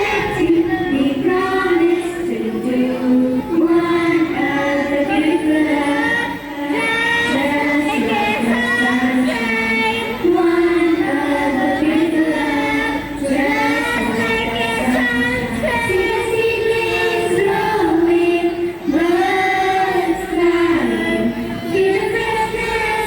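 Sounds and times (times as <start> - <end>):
voices singing together: 0.0 - 23.0.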